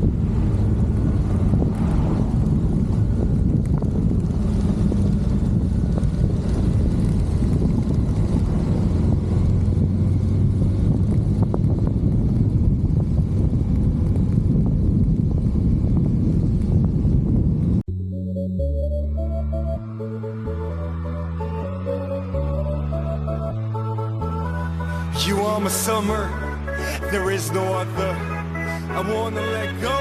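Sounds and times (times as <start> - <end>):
engine running: 0.0 - 18.0
wind noise on microphone: 0.0 - 18.0.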